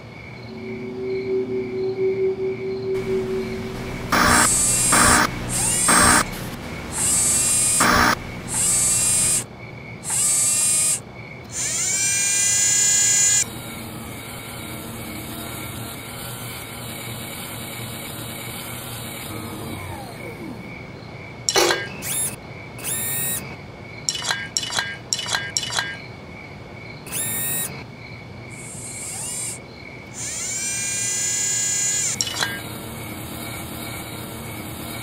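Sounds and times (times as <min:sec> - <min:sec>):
rising whine: 0:00.4 - 0:09.4
steady electronic hum: 0:00.4 - 0:09.5, 0:32.0 - 0:35.0
servo motor whirs: 0:03.0 - 0:20.7, 0:21.6 - 0:23.5, 0:27.1 - 0:27.8, 0:28.6 - 0:29.6, 0:30.2 - 0:35.0.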